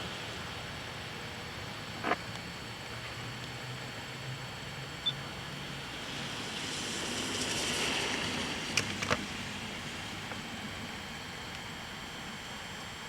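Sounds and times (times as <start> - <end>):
tyre hiss on wet road: 5.5 - 12.7.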